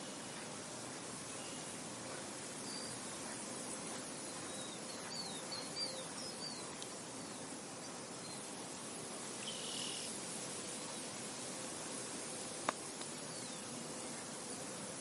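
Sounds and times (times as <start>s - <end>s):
insects: 0.0s - 15.0s
wind: 0.0s - 15.0s
bird chirping: 4.1s - 8.4s.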